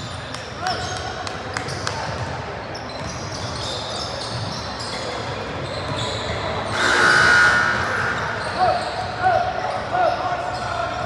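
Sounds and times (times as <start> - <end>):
sneakers squeaking: 1.6 - 11.0
loud shrill blast: 6.7 - 8.8.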